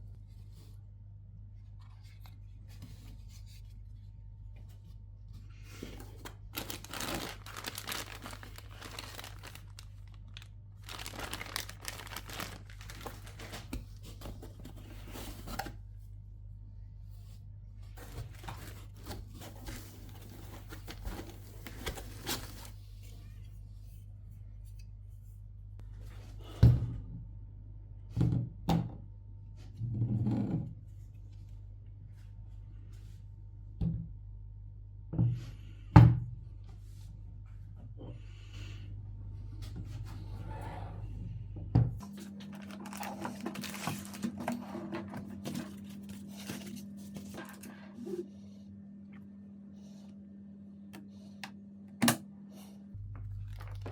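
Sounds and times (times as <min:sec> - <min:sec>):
packaging rustling: 0:06.0 - 0:15.7, 0:18.0 - 0:22.8, 0:42.1 - 0:46.8
steady low hum: 0:30.7 - 0:53.9.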